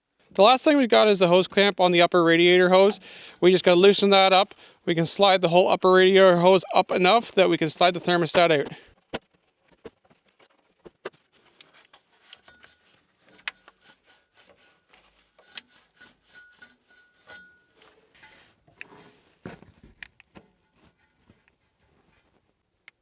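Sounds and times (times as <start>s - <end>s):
hand tool clicks and rubbing: 2.4s - 4.8s, 6.7s - 9.2s.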